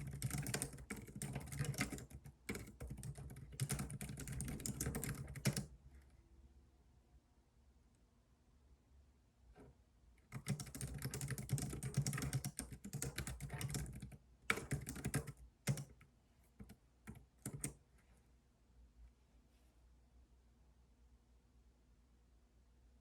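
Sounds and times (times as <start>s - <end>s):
typing on computer keyboard: 0.0s - 5.7s, 10.3s - 17.8s.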